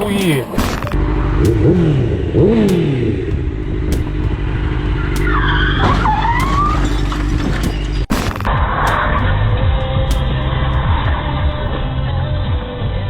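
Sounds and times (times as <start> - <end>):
car engine and road noise: 0.0 - 13.0
high squeal: 5.0 - 8.1.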